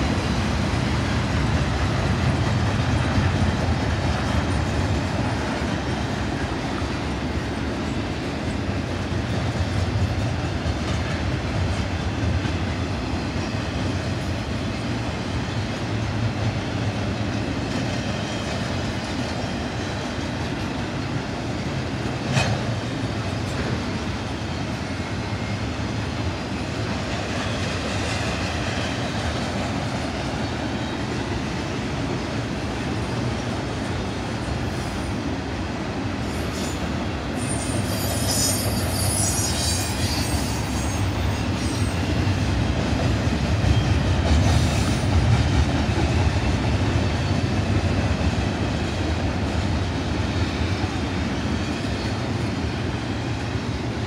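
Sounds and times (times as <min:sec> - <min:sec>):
steel wheels rumbling on rail: 0:00.0 - 0:54.0
high metallic squeal: 0:37.4 - 0:42.1.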